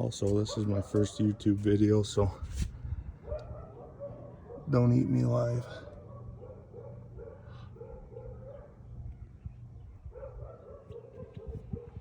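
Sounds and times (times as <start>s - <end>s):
steady low hum: 0.0s - 12.0s
dog barking: 0.4s - 1.5s, 3.2s - 4.8s, 5.7s - 8.8s, 10.1s - 12.0s.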